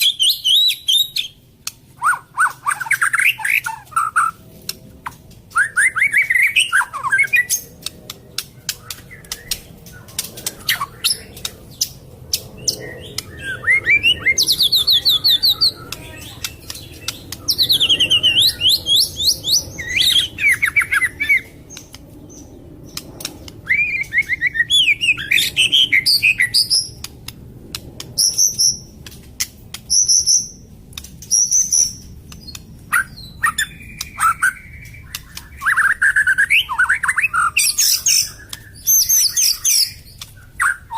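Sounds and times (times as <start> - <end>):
songbird whistling and clicking: 0.0 - 40.9.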